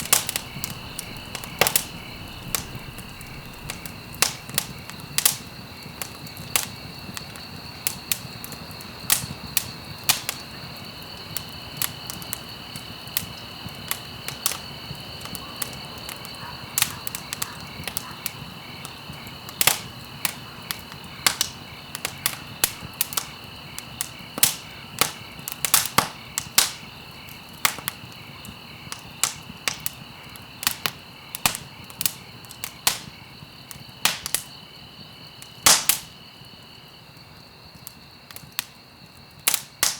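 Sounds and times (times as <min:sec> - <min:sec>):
insect chirring: 0:00.0 - 0:08.2
campfire crackling and popping: 0:00.0 - 0:34.7, 0:35.3 - 0:36.6, 0:37.8 - 0:39.9.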